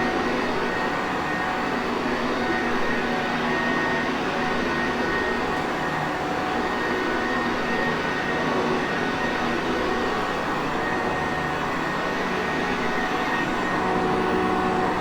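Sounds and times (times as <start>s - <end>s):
vacuum cleaner motor running: 10.2s - 15.0s.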